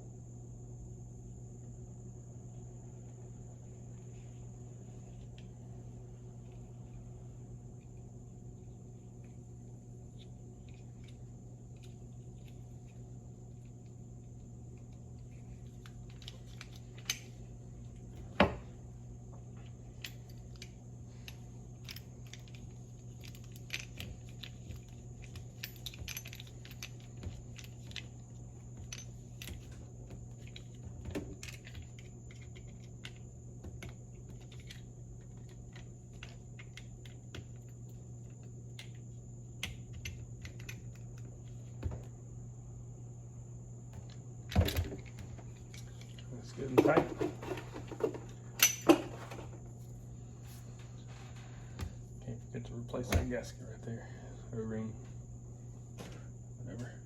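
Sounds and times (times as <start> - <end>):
steady low hum: 0.0 - 57.0
metal parts and tools clinking: 19.9 - 33.2, 44.6 - 49.6.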